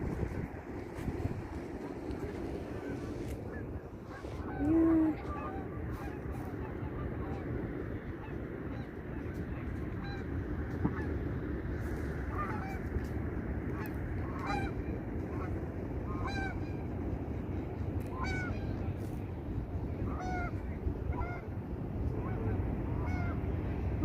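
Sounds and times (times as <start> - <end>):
waterfowl calling: 2.3 - 7.4, 8.1 - 11.1, 12.3 - 12.9, 13.8 - 15.5, 16.1 - 16.8, 18.1 - 18.8, 20.0 - 21.5, 22.2 - 23.4.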